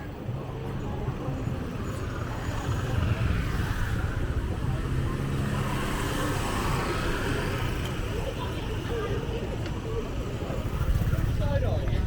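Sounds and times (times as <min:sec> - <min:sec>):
street traffic engines rumbling: 0:00.0 - 0:12.0.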